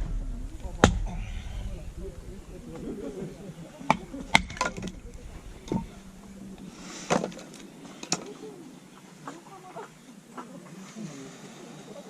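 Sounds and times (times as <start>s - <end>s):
firewood splitting knocks: 0.0s - 3.0s, 3.9s - 7.6s
faint bird calls: 0.0s - 12.0s.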